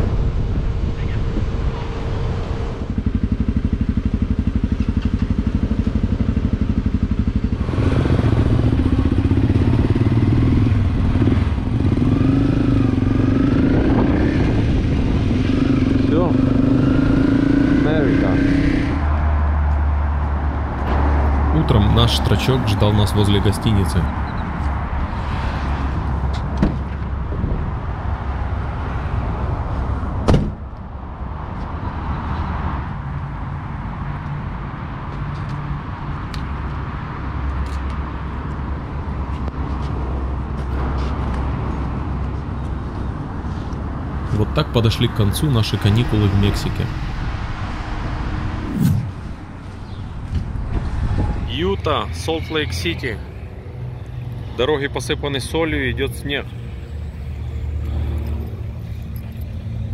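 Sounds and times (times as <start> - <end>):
vehicle engine rumbling: 0.0 - 59.9
motorcycle pulling away: 2.0 - 19.0
motorcycle engine idling: 2.9 - 10.9
sharp knock: 30.2 - 30.6.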